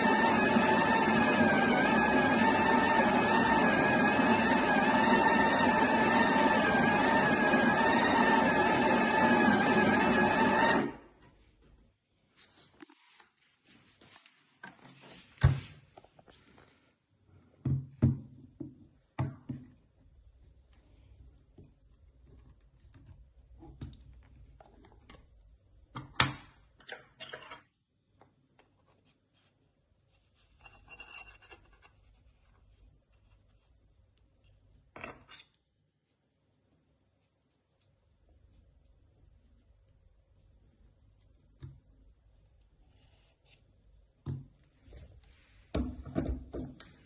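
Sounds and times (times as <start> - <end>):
objects knocking and scraping: 45.7 - 47.0.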